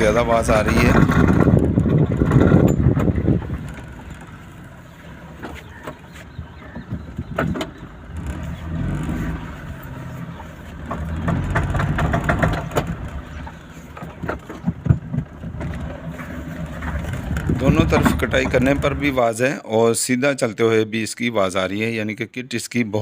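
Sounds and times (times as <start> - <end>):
car engine humming low: 0.0 - 19.2
axle joint clicking and knocking: 1.0 - 4.4, 10.7 - 15.9.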